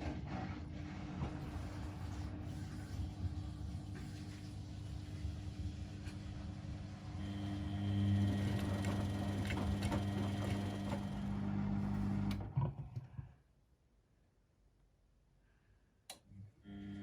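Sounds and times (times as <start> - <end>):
washing machine motor hum: 0.0 - 12.8, 16.5 - 17.0.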